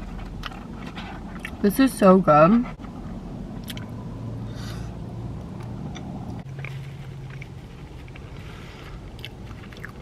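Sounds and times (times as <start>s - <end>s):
car interior hum: 0.0s - 10.0s
person chewing: 0.2s - 1.6s, 3.6s - 3.9s, 5.6s - 10.0s
wet mouth clicks: 3.6s - 3.9s.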